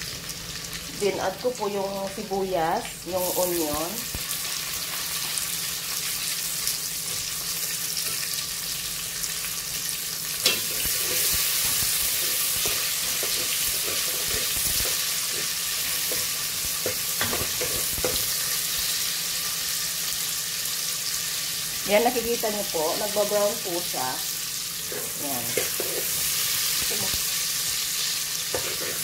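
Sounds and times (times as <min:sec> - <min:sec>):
garlic and onion sizzling in oil: 0:00.0 - 0:29.0.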